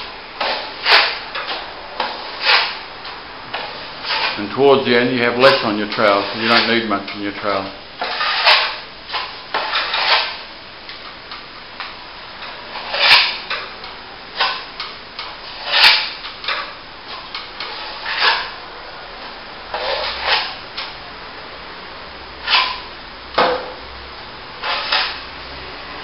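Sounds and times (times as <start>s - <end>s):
trowel scraping wet plaster: 0.4s - 2.8s, 3.5s - 10.4s, 12.4s - 13.7s, 14.4s - 18.5s, 19.7s - 20.6s, 22.4s - 22.9s, 24.6s - 25.3s.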